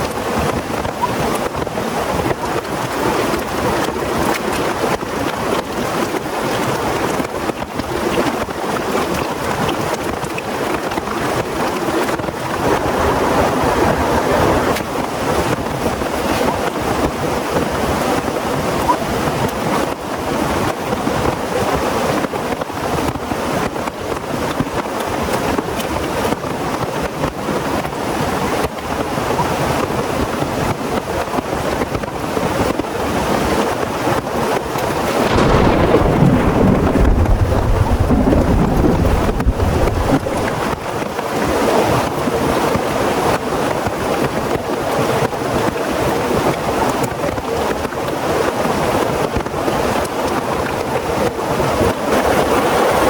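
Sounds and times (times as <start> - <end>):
heavy rain pouring: 10.5 - 17.2, 34.8 - 42.7
thunder rumble: 11.2 - 16.5, 35.1 - 41.2.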